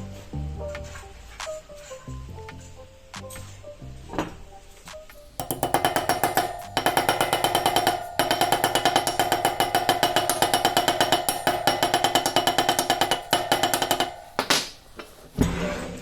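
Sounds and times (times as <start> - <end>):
bicycle freewheel ratcheting: 5.2 - 15.3.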